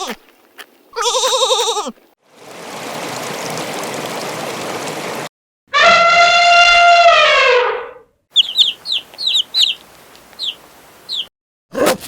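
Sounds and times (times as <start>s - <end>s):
small birds chirping: 8.3s - 11.3s.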